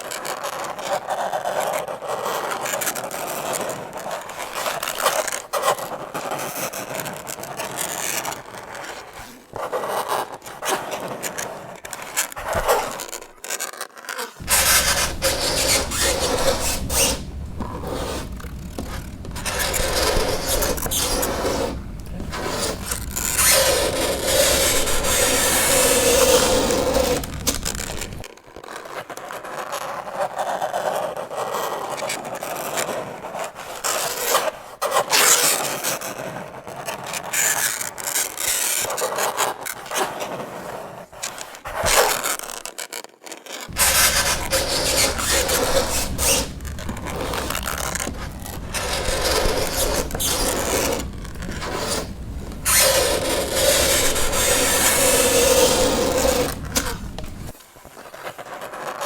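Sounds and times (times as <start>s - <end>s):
fingernails scratching chalkboard: 14.4s - 28.2s, 43.7s - 59.0s.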